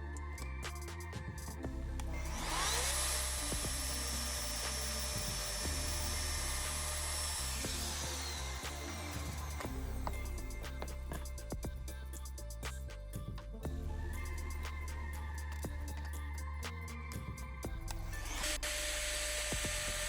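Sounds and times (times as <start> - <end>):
wood router motor whining: 2.2 - 10.2, 18.3 - 20.0.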